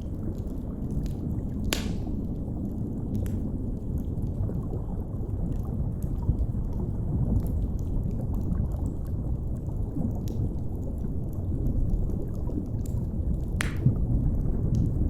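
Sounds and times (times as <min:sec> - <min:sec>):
wood fire crackling: 0:00.0 - 0:04.8, 0:07.3 - 0:15.0
low underwater rumble: 0:00.1 - 0:15.0.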